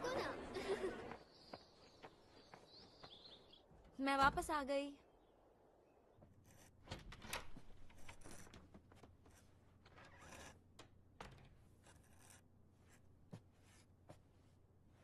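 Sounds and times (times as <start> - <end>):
rustling and scraping: 6.2 - 15.0.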